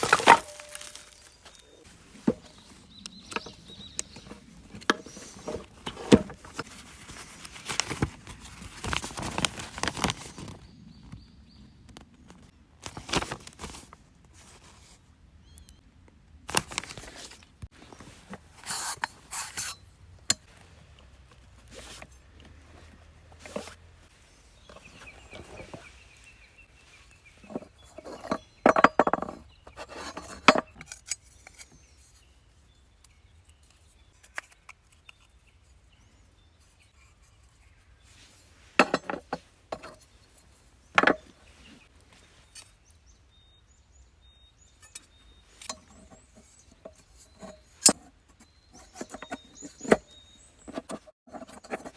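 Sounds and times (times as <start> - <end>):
camping gear clinking and clattering: 0.0 - 10.6, 12.8 - 14.9, 16.5 - 32.0, 38.1 - 42.8, 44.6 - 51.9.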